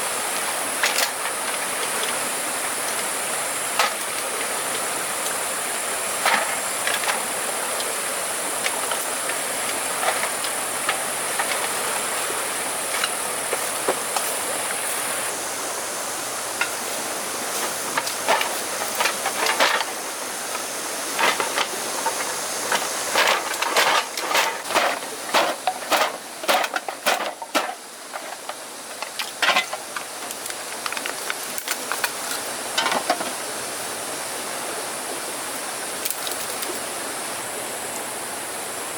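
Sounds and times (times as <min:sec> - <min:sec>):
rushing hiss: 0:00.0 - 0:38.9
sharp knocks and clatters: 0:21.2 - 0:29.9.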